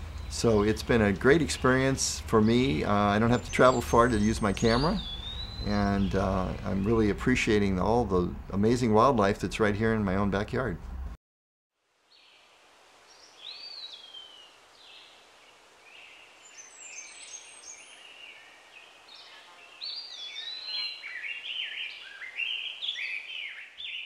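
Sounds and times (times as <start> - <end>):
songbirds singing and chirping: 0.0 - 8.9, 12.1 - 24.0
faint steady hiss: 0.0 - 11.2, 11.8 - 24.0.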